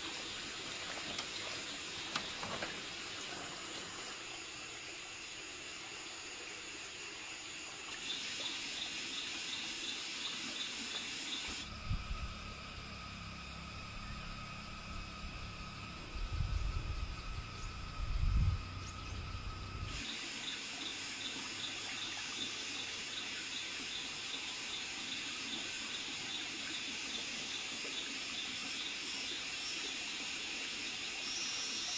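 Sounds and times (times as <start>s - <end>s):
steady rush like water: 0.0s - 11.8s, 18.6s - 31.9s
insects trilling: 0.0s - 31.9s
low insect tones: 0.0s - 31.9s
pulsing insect: 0.0s - 31.9s.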